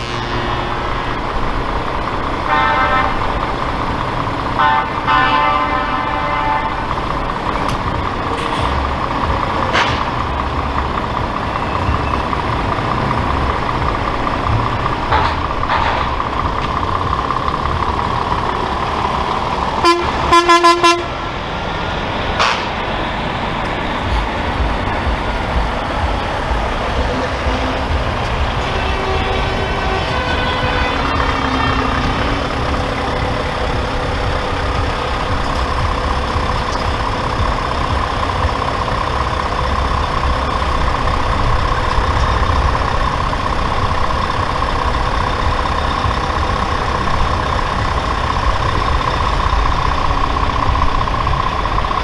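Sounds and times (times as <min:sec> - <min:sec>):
short horn toots: 0:00.0 - 0:01.2, 0:19.8 - 0:21.2
truck horn blasts: 0:00.0 - 0:21.5, 0:22.4 - 0:23.0, 0:23.9 - 0:48.7
truck engines rumbling: 0:00.0 - 0:52.0.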